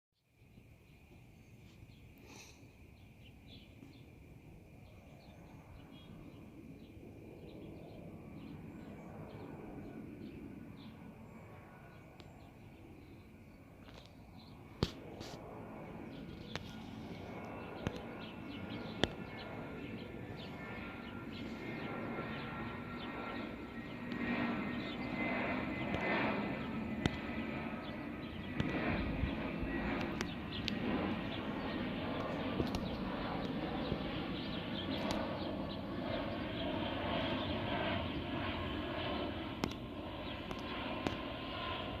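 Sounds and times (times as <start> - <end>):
jet engines roaring: 3.8 - 42.0
sharp clicks: 30.0 - 30.8, 39.6 - 39.8.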